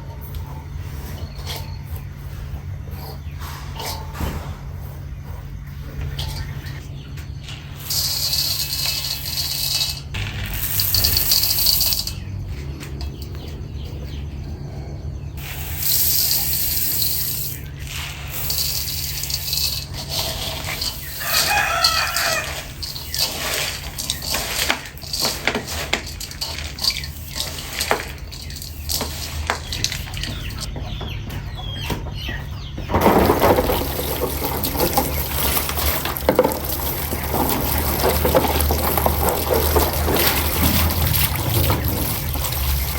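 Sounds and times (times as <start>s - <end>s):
chickens: 17.6s - 42.9s
rooster crowing: 21.0s - 22.9s
running water: 33.1s - 42.9s.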